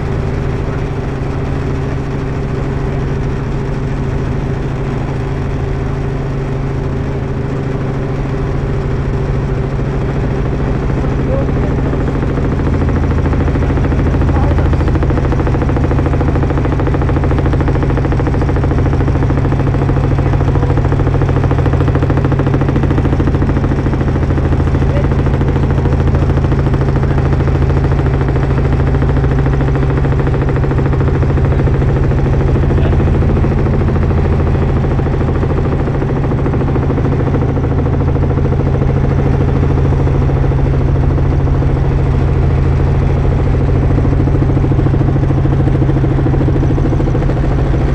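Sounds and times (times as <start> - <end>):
helicopter engine and rotor: 0.0 - 47.9.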